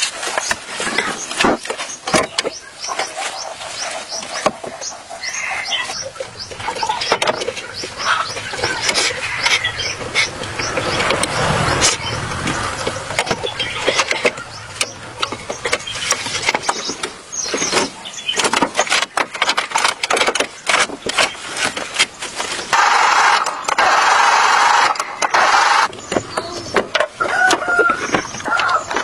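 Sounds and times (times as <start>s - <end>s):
sharp clicks and knocks: 6.2s - 29.0s.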